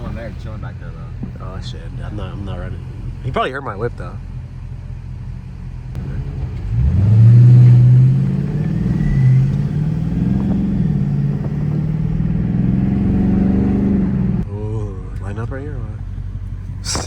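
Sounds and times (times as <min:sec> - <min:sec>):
car engine accelerating: 0:00.0 - 0:14.5.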